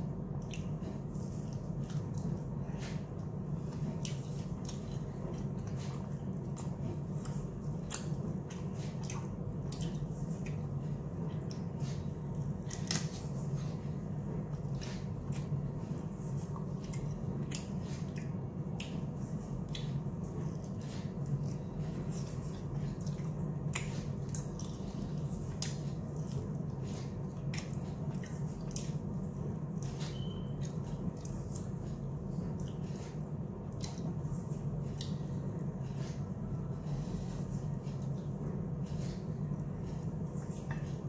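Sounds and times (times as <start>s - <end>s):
person chewing with mouth smacks: 0.1s - 41.0s.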